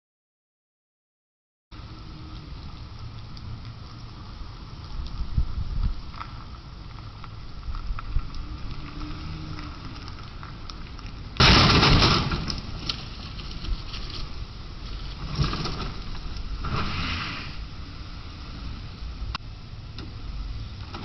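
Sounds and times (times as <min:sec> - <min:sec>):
car road and engine noise: 0:01.7 - 0:21.0
loud crash: 0:11.4 - 0:12.9.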